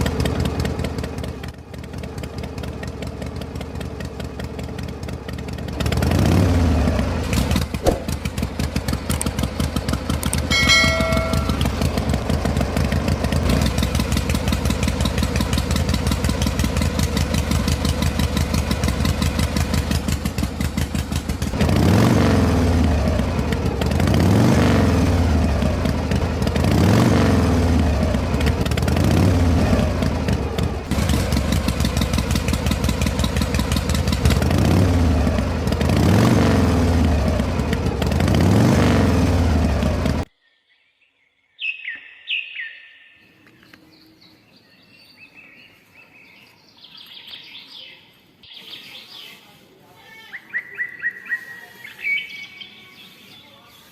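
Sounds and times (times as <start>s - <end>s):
small engine revving: 0.0s - 40.3s.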